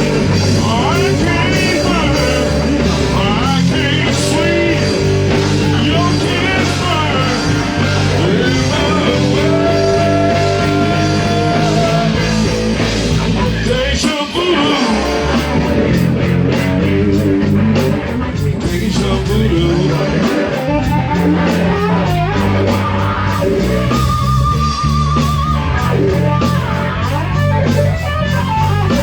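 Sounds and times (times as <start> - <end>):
person singing: 0.0 - 12.6, 13.2 - 15.9
rock band playing: 0.0 - 29.0.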